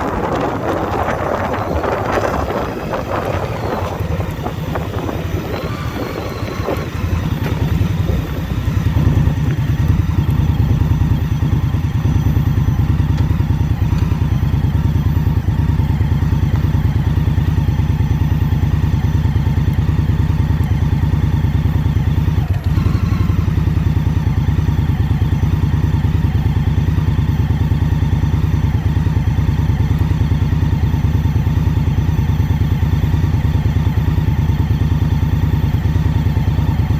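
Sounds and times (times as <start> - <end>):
wind noise on microphone: 0.0 - 11.0
motorcycle engine running: 0.0 - 36.9.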